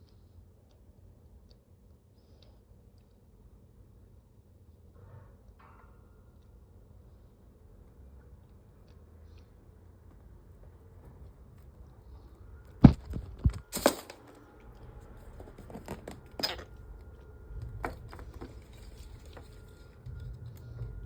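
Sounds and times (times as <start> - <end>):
handling knocks and clicks: 12.8 - 14.4, 15.2 - 16.8.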